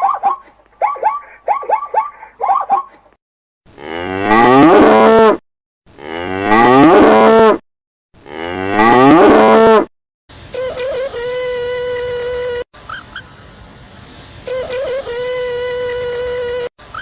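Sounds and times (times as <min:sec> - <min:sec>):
cow mooing: 0:06.1 - 0:07.4.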